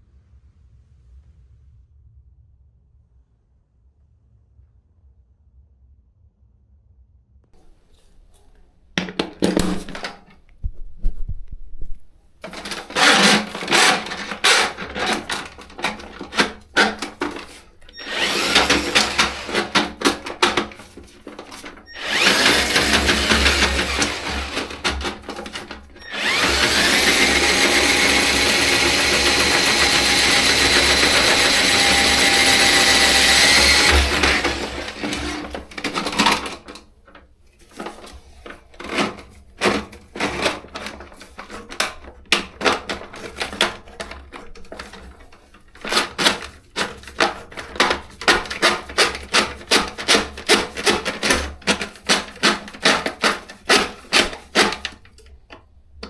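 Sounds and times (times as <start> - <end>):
power drill running: 12.4 - 36.8, 38.8 - 44.1, 45.8 - 54.9.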